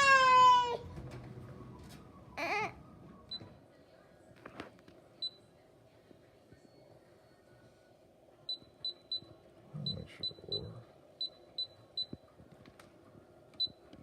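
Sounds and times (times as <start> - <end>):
young child wailing: 0.0 - 0.9, 2.4 - 2.8
faint electronic beeps: 5.2 - 12.3.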